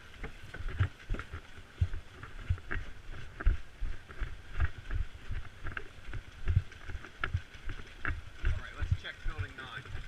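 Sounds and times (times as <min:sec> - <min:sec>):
footsteps with dull thumps: 0:00.0 - 0:10.0.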